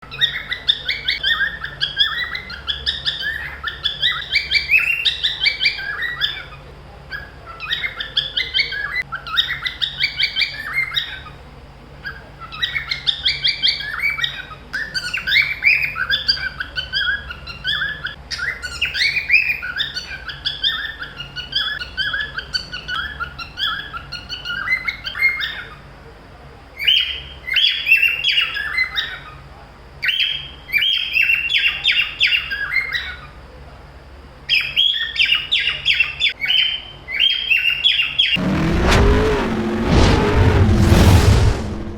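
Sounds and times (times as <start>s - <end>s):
cockatiels chirping: 0.2s - 11.2s.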